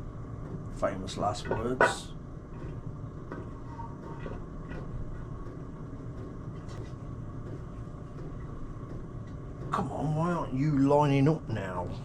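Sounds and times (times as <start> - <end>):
steady low hum: 0.0 - 12.0
light knocks of metal parts: 0.4 - 9.9.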